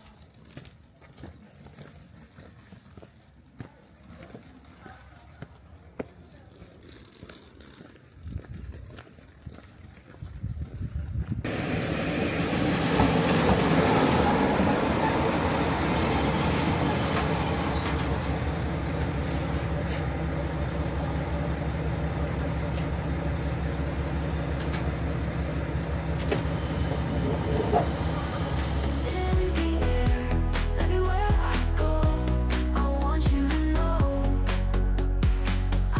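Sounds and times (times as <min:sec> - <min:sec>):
train wheels rolling on rails: 0:10.8 - 0:29.5
diesel engine drone: 0:11.5 - 0:32.0.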